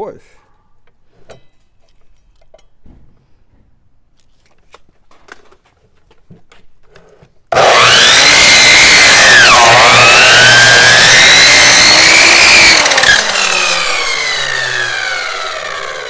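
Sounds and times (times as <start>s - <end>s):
electric chop saw cutting meat: 7.5s - 16.0s.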